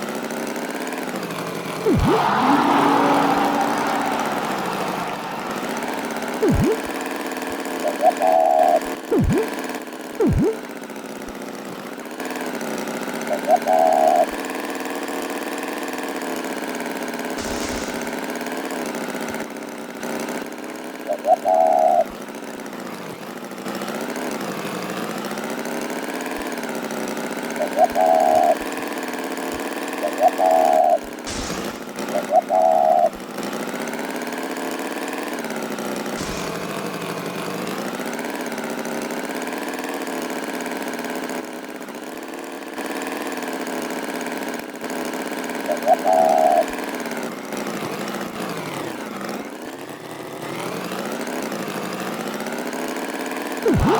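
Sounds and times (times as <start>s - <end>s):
small engine idling: 0.0s - 53.9s.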